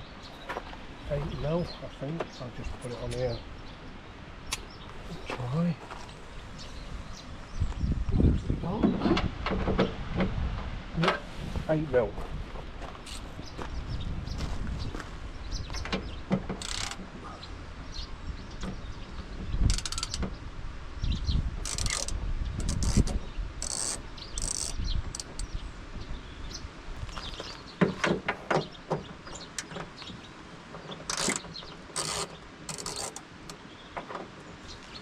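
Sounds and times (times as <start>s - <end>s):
socket ratchet clicking: 16.6s - 17.0s, 19.7s - 20.2s, 21.6s - 25.5s, 31.1s - 33.2s.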